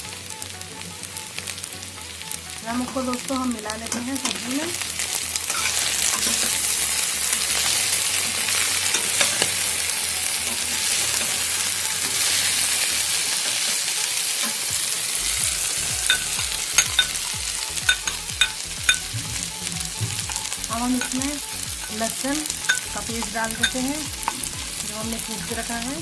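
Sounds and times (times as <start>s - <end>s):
vegetables sizzling in oil: 0.0s - 26.0s
spoon clicking against pan: 17.9s - 19.0s.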